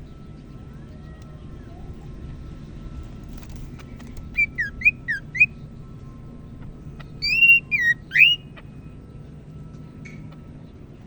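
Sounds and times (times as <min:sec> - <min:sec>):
bird singing whistled notes: 0:04.2 - 0:05.6, 0:07.0 - 0:08.6.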